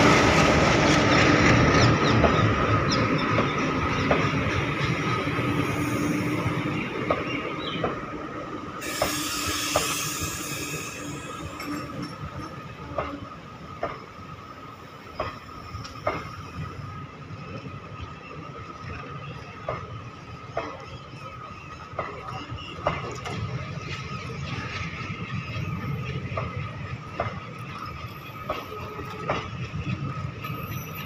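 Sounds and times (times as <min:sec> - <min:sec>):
train wheels clacking over rail joints: 0:00.0 - 0:08.0, 0:08.8 - 0:14.3, 0:15.0 - 0:16.6, 0:18.9 - 0:31.0
burst of hiss: 0:08.8 - 0:11.6
wheel squeal: 0:08.8 - 0:12.2.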